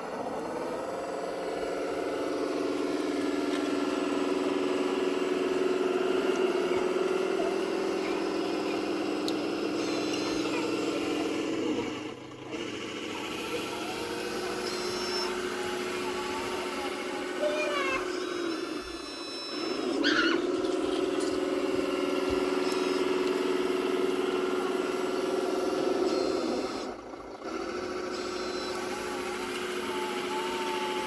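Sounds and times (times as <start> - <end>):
toy motor humming: 0.0 - 31.0.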